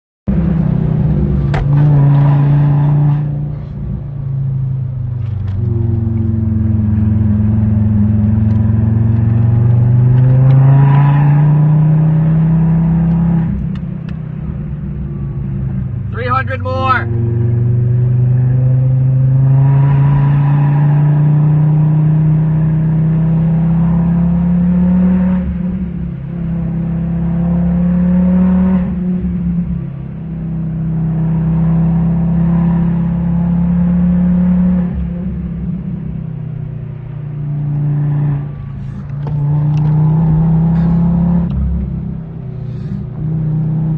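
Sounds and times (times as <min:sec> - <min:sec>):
car engine under load: 0:00.3 - 0:43.9.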